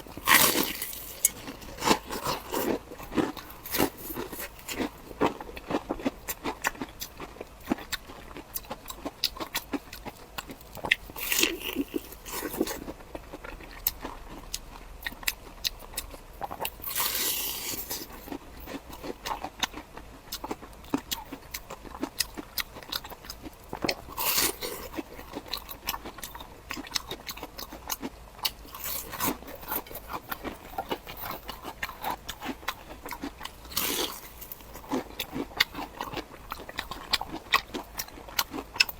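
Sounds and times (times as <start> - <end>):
wet chewing: 0.0 - 38.9
crunchy bites: 0.1 - 9.8, 20.4 - 38.9.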